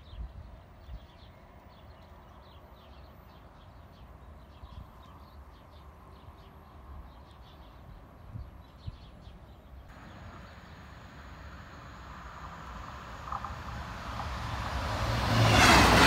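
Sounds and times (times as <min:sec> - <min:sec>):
small birds chirping: 0:00.0 - 0:14.6
wind rumble on microphone: 0:07.9 - 0:09.2.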